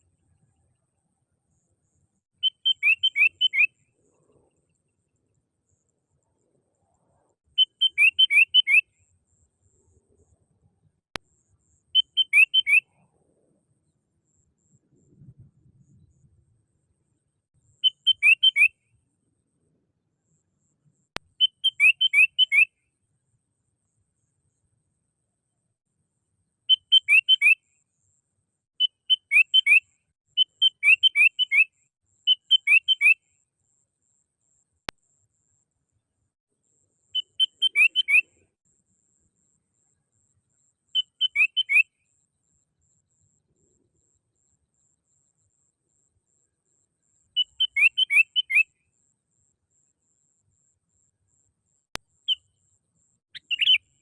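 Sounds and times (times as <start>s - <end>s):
bulbul singing: 2.4s - 3.9s, 7.6s - 8.9s, 11.7s - 13.0s, 17.8s - 18.8s, 21.3s - 22.7s, 26.7s - 27.6s, 28.8s - 33.2s, 37.2s - 38.5s, 41.0s - 41.9s, 47.4s - 48.8s, 53.3s - 54.0s.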